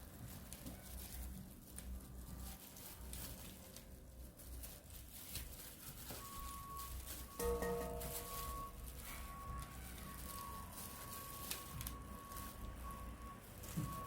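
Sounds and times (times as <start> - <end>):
faint small clicks and rustles: 0.0 - 7.4, 8.0 - 14.0
low steady hum: 6.2 - 14.0.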